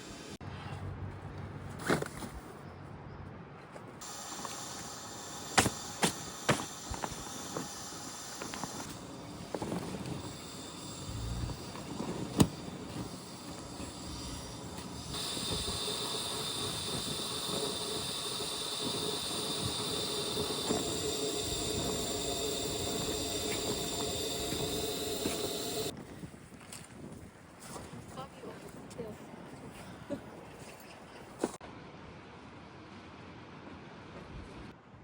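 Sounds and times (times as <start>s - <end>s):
steady hiss: 4.0s - 26.0s.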